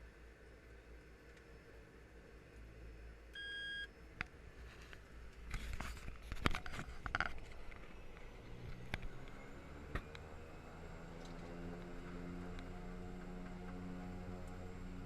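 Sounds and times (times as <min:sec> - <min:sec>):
steady low hum: 0:00.0 - 0:15.0
short electronic beep: 0:03.4 - 0:03.9.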